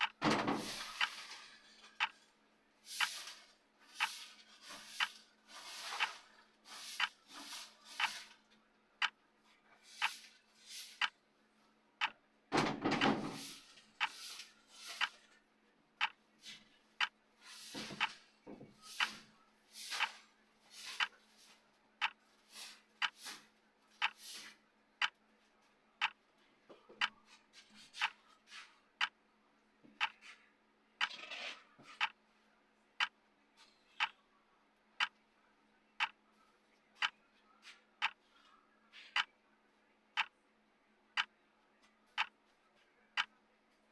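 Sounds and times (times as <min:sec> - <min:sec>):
timer ticking: 0:00.0 - 0:00.2, 0:00.9 - 0:01.1, 0:03.0 - 0:03.2, 0:04.0 - 0:04.2, 0:05.0 - 0:05.2, 0:05.9 - 0:06.2, 0:07.0 - 0:07.2, 0:08.0 - 0:08.2, 0:09.0 - 0:09.2, 0:10.9 - 0:11.2, 0:12.0 - 0:12.2, 0:15.0 - 0:15.2, 0:16.0 - 0:16.2, 0:17.0 - 0:17.2, 0:18.0 - 0:18.2, 0:19.0 - 0:19.2, 0:19.9 - 0:20.2, 0:21.0 - 0:21.2, 0:22.0 - 0:22.2, 0:23.0 - 0:23.4, 0:24.0 - 0:24.2, 0:25.0 - 0:25.2, 0:26.0 - 0:26.2, 0:27.0 - 0:27.2, 0:28.0 - 0:28.2, 0:29.0 - 0:29.2, 0:30.0 - 0:30.2, 0:32.0 - 0:32.2, 0:34.0 - 0:34.2, 0:35.0 - 0:35.2, 0:36.0 - 0:36.2, 0:37.0 - 0:37.2, 0:38.0 - 0:38.3, 0:39.1 - 0:39.3, 0:41.2 - 0:41.4, 0:42.2 - 0:42.4.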